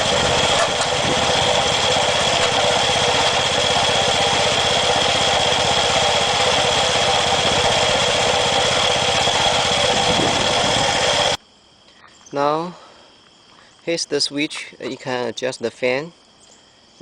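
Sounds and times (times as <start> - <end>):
gasoline engine running: 0.0 - 11.4
high whine: 0.0 - 11.4.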